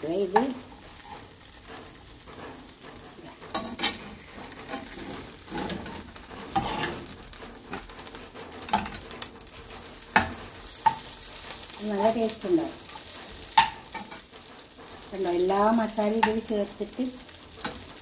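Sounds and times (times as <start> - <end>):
metal spatula scraping a pan: 0.0 - 18.0
shrimp sizzling in oil: 0.0 - 18.0.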